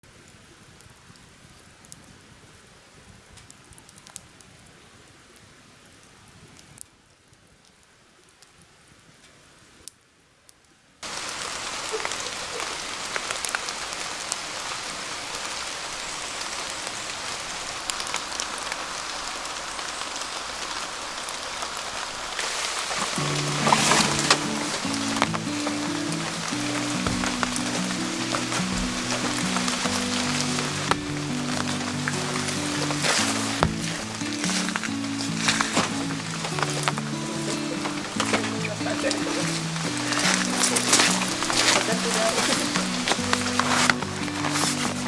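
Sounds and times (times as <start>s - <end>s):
heavy rain downpour: 11.0s - 45.0s
faint patter with ticks: 22.3s - 45.0s.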